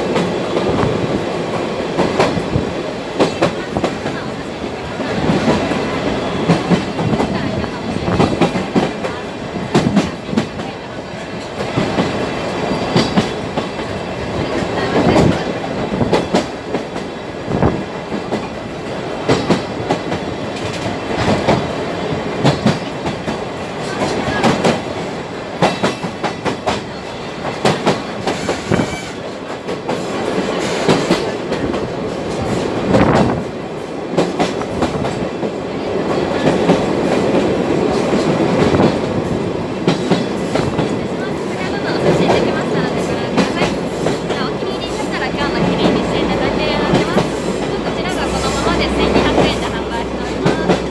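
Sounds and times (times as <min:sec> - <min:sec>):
train rumble inside carriage: 0:00.0 - 0:50.9.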